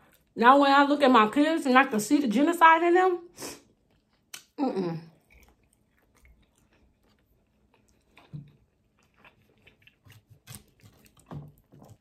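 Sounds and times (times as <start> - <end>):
person chewing: 3.7 - 12.0.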